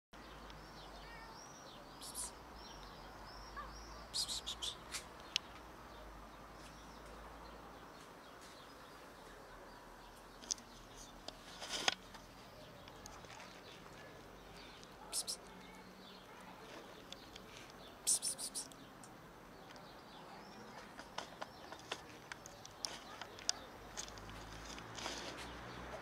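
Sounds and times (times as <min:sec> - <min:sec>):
faint high bird chirping: 0:00.2 - 0:05.6, 0:12.3 - 0:24.1.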